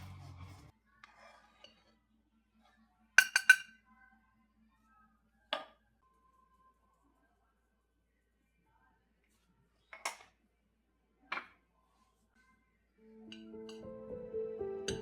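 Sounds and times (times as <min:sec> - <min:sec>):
faint rub: 0:00.0 - 0:02.0
tableware clinking: 0:03.2 - 0:03.7.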